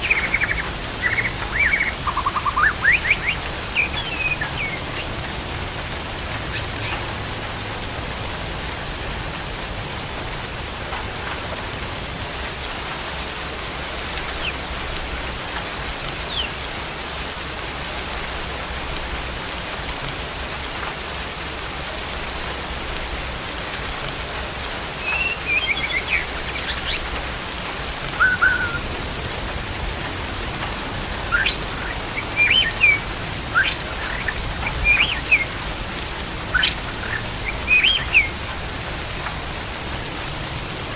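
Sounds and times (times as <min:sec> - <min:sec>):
songbird chirps and trills: 0:00.0 - 0:07.3, 0:10.1 - 0:16.9, 0:24.0 - 0:40.3
steady rain-like hiss: 0:00.0 - 0:40.9.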